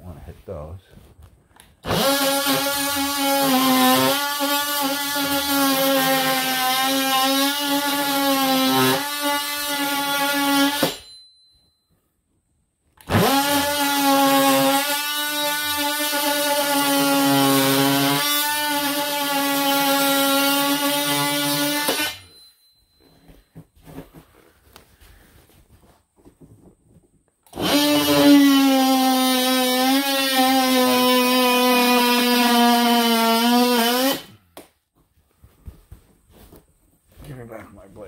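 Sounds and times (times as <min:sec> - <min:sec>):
oscillating tool cutting wood: 0:01.8 - 0:11.1, 0:13.0 - 0:22.4, 0:27.5 - 0:34.4.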